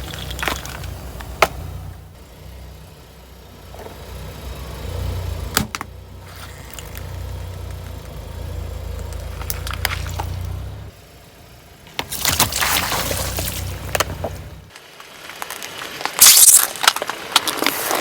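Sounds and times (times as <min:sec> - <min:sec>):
car engine running low: 0:00.0 - 0:18.0
tyre crushing objects: 0:12.0 - 0:18.0.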